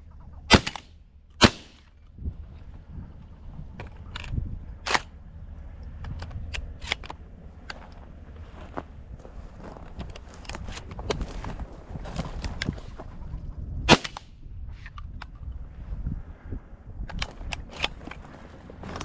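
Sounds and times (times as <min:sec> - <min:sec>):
shotgun shot: 0:00.5 - 0:01.9, 0:13.9 - 0:14.3
footsteps crunching through dry cover: 0:07.2 - 0:13.2, 0:17.9 - 0:19.0.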